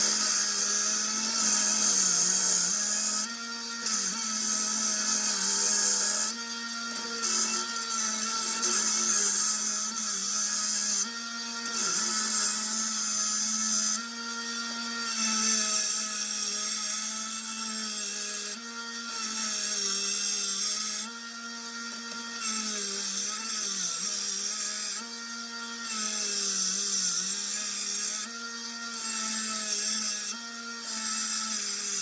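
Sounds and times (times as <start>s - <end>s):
belt sander motor hum: 0.0s - 32.0s.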